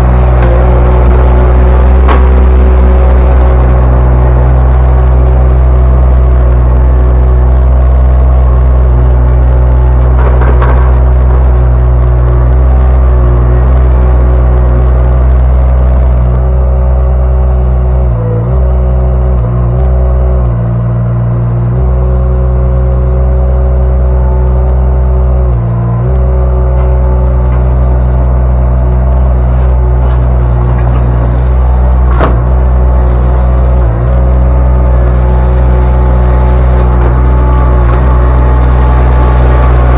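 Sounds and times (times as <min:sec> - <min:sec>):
skid steer engine running: 0:00.0 - 0:39.9.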